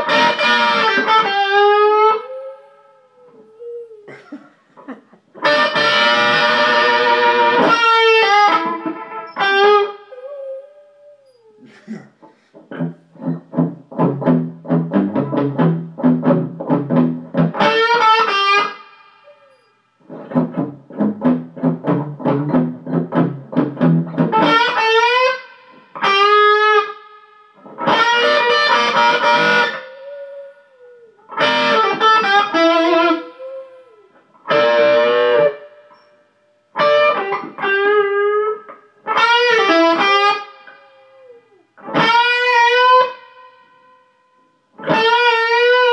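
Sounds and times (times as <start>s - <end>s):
blues electric guitar: 0.0s - 4.2s, 4.8s - 45.9s.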